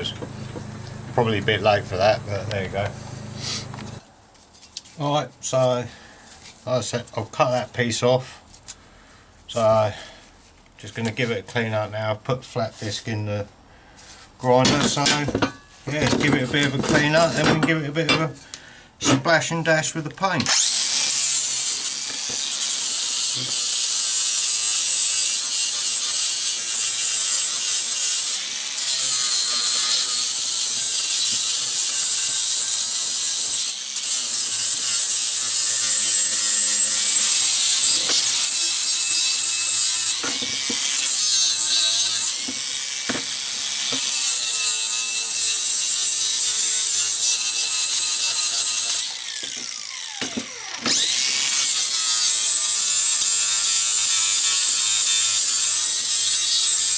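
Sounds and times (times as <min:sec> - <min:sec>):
angle grinder grinding steel: 0:00.0 - 0:04.0, 0:14.7 - 0:18.4, 0:20.5 - 0:56.9.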